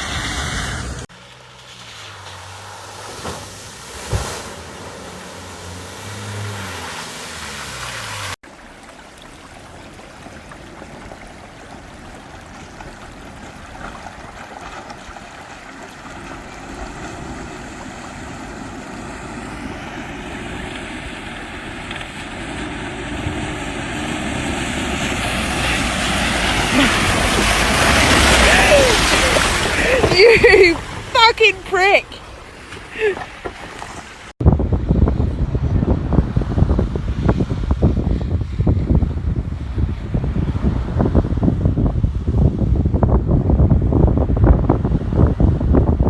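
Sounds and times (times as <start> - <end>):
off-road vehicle engine revving: 0.0 - 8.4, 16.6 - 34.3
rushing noise: 16.6 - 31.2.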